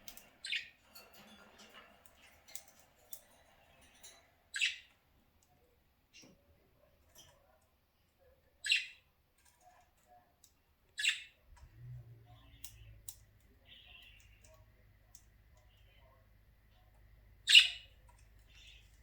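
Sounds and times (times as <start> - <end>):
budgerigar chirps and chatter: 0.0 - 1.1, 1.7 - 5.0, 8.5 - 9.1, 10.9 - 19.0
low steady hum: 11.5 - 19.0
budgerigar squawks: 17.5 - 17.9.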